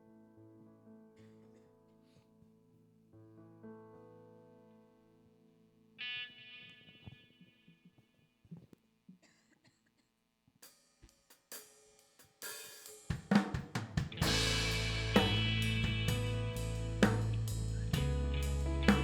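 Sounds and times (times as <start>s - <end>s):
hi-hat and cymbal strikes: 11.0s - 13.6s, 14.2s - 19.0s
band playing loudly: 14.2s - 19.0s.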